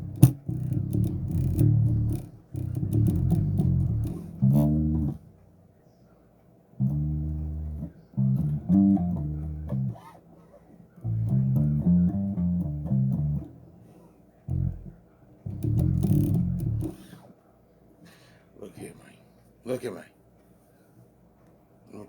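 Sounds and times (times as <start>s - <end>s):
electric bass guitar plucked: 0.0s - 5.3s, 6.8s - 10.0s, 11.0s - 13.8s, 14.5s - 17.1s.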